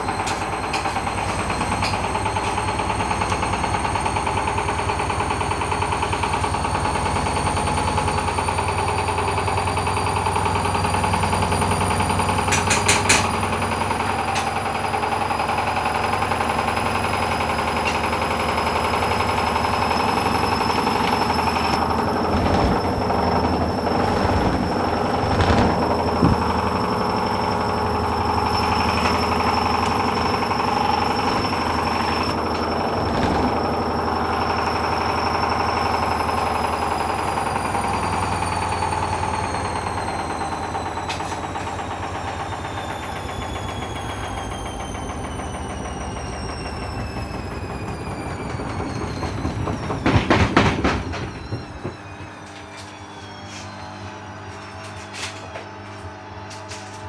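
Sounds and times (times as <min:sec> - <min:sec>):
washing machine spinning: 0:00.0 - 0:57.0
motor whine: 0:18.7 - 0:35.4.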